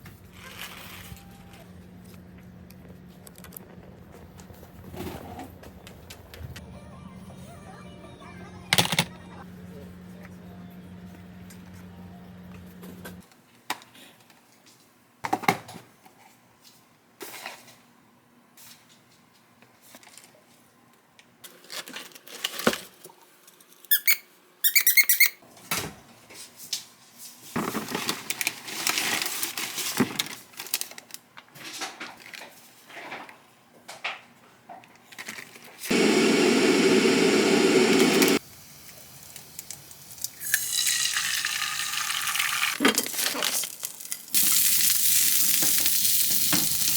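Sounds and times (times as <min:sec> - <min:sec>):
brief squeaking: 0:23.9 - 0:25.4.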